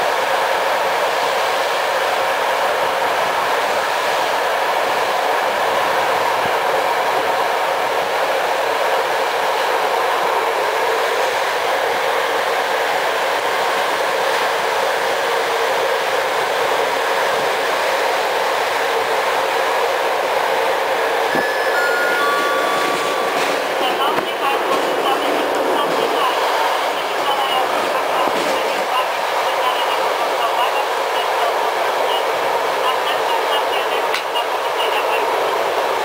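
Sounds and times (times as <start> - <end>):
train running on rails: 0.0 - 36.0
tone stepping down in pitch: 21.3 - 23.8.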